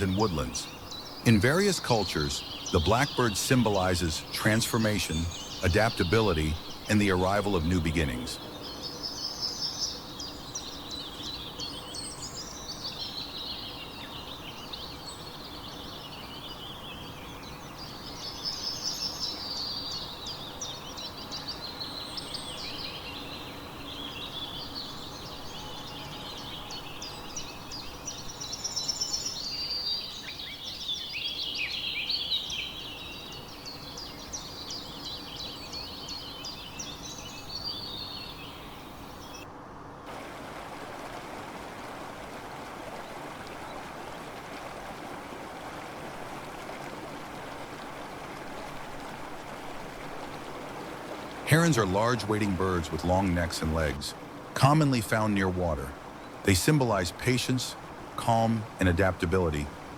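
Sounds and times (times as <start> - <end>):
small birds chirping and twittering: 0.0 - 59.9.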